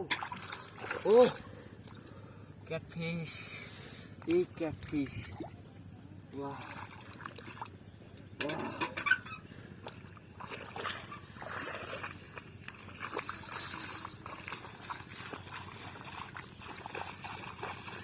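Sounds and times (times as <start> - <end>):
shallow water splashing: 0.0 - 2.4, 6.4 - 7.9, 9.8 - 18.0.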